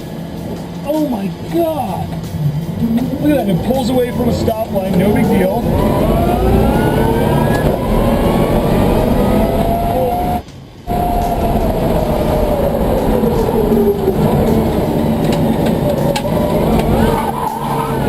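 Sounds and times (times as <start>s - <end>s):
loud rushing noise: 0.0s - 18.0s
electric motor whining: 3.7s - 18.0s.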